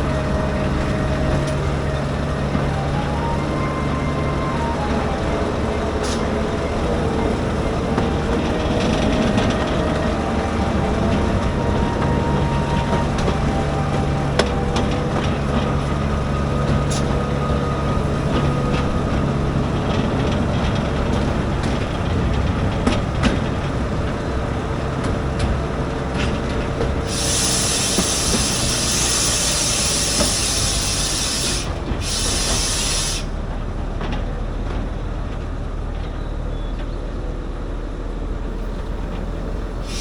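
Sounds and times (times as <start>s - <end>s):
wheels squealing: 0.0s - 33.7s, 38.5s - 40.0s
train rumbling on track: 0.0s - 40.0s
loud hiss: 27.0s - 33.4s, 38.5s - 40.0s.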